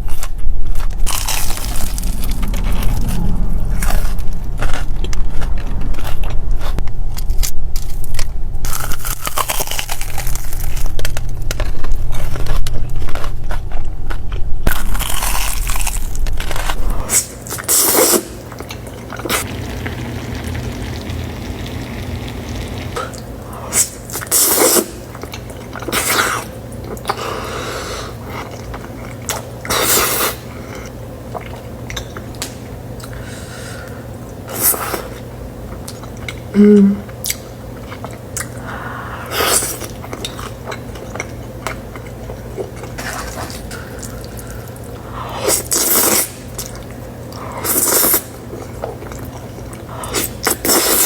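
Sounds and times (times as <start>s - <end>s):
person biting and chewing: 0.0s - 2.4s, 5.7s - 18.3s.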